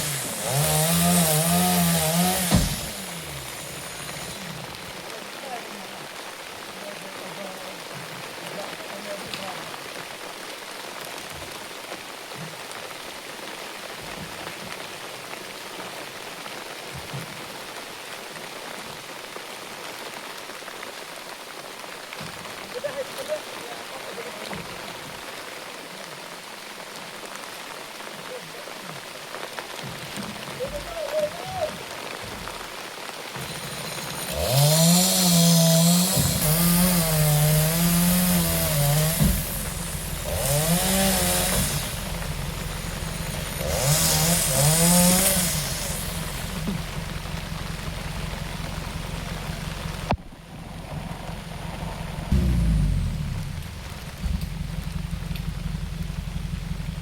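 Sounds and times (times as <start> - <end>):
chainsaw cutting logs: 0.0 - 4.9, 33.3 - 50.1, 52.3 - 55.8
rain falling: 0.0 - 57.0
faint low thuds: 46.4 - 56.1.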